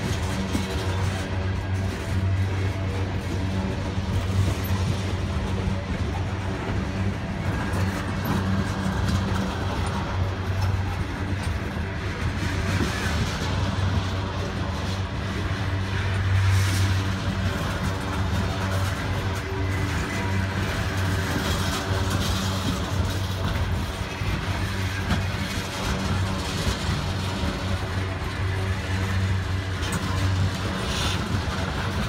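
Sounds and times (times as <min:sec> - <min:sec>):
diesel locomotive engine drone: 0:00.0 - 0:32.0
train wheels rolling on rails: 0:00.0 - 0:32.0.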